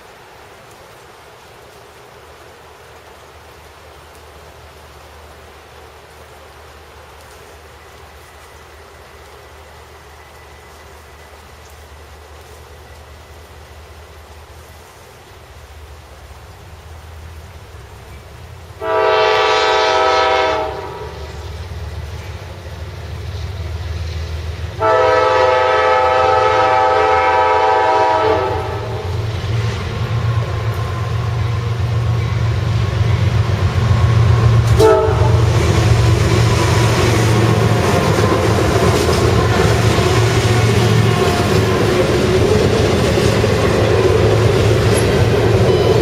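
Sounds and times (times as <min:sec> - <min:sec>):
rail and wheel noise: 0:00.0 - 0:46.0
freight train rumbling past: 0:03.4 - 0:46.0
locomotive air horn blasts: 0:18.8 - 0:21.3, 0:24.8 - 0:29.1, 0:34.7 - 0:35.6.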